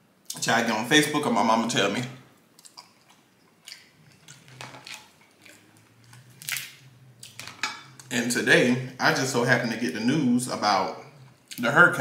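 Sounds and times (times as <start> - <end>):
crab shell crackling: 2.5 - 7.7
wet chewing: 2.6 - 7.4.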